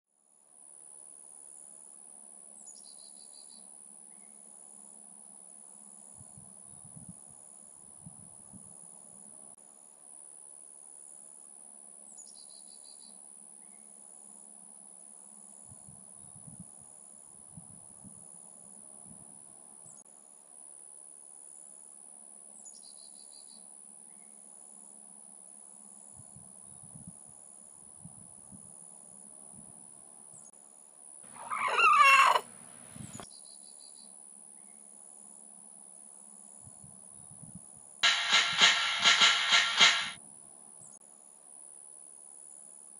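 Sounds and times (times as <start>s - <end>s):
insects trilling: 31.4s - 32.5s
loud wavering call: 31.4s - 32.5s.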